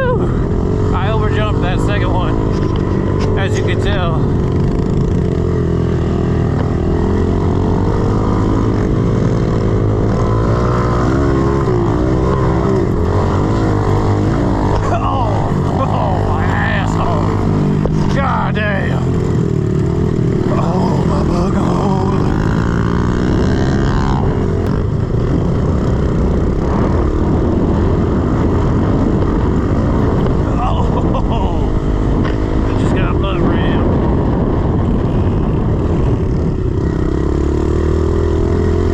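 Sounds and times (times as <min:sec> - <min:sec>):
motorbike engine under throttle: 0:00.0 - 0:38.9.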